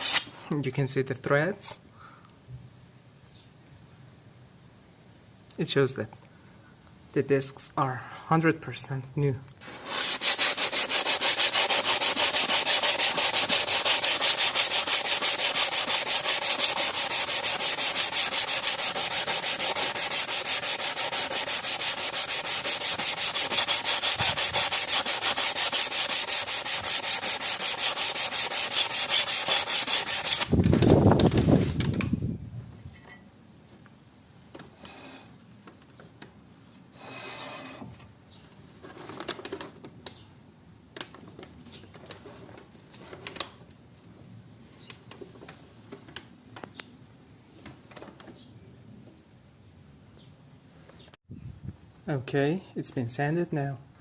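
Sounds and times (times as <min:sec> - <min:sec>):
sanding scraping metal: 0:09.6 - 0:30.6.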